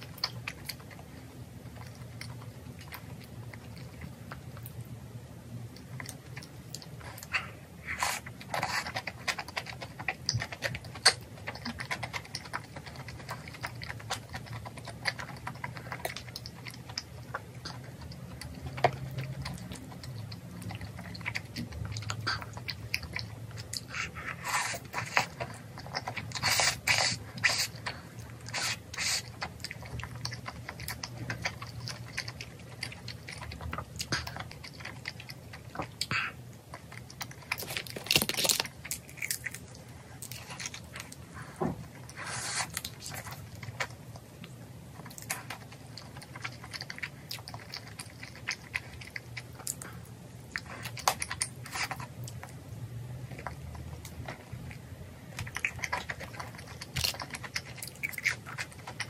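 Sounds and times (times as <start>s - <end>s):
chewing: 0.0s - 4.9s, 5.7s - 59.0s
wet mouth noises: 17.5s - 29.7s.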